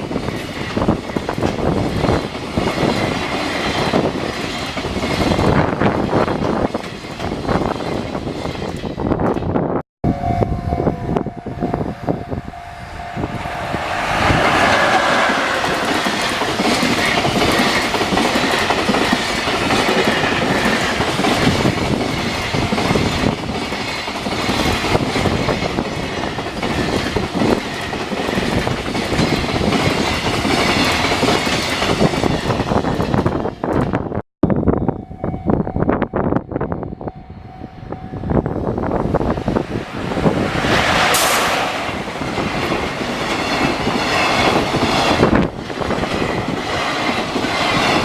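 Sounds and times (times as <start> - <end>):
train wheels clattering over rail joints: 0.0 - 9.6, 14.3 - 34.0, 39.1 - 48.0
steady single tone: 10.0 - 15.4, 34.4 - 38.6.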